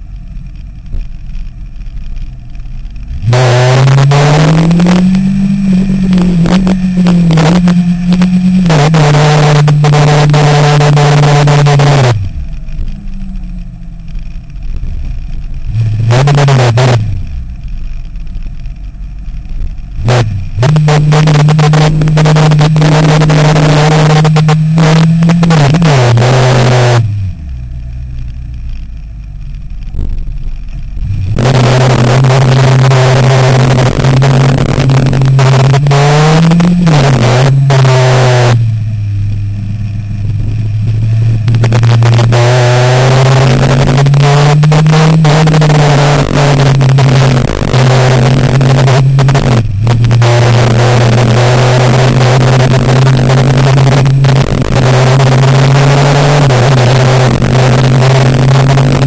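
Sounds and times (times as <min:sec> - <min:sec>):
motorcycle engine pulling hard: 0:00.0 - 0:59.0
heavy wind noise: 0:28.3 - 0:59.0.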